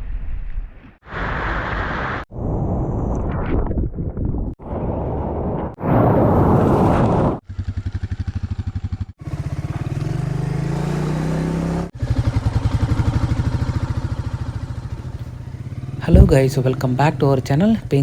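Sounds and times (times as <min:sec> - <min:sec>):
motorcycle engine running: 0:07.4 - 0:18.0.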